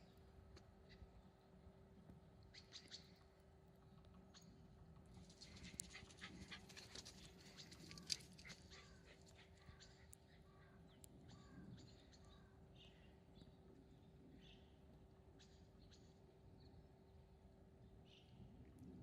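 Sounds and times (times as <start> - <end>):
dogs scuffling and clicking: 5.4 - 8.8.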